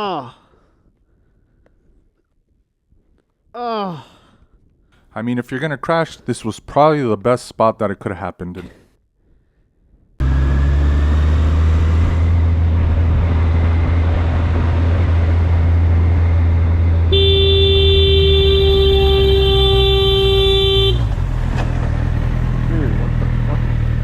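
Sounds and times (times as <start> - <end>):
traffic and engine rumble: 10.2 - 24.0
vehicle horn long blast: 17.1 - 21.2.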